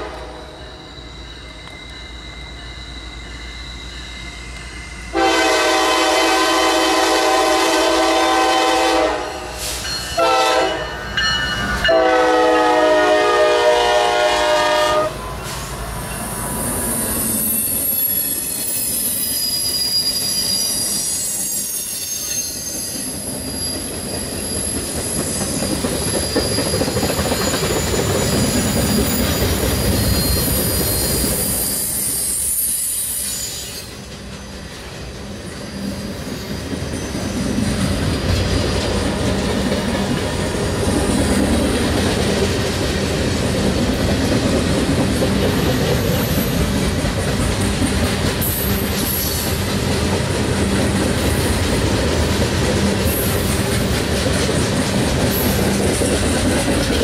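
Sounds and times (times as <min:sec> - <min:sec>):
high-pitched wheel squeal: 0:00.2 - 0:05.1, 0:15.2 - 0:34.0
rail clatter: 0:22.2 - 0:32.2, 0:33.8 - 0:57.0.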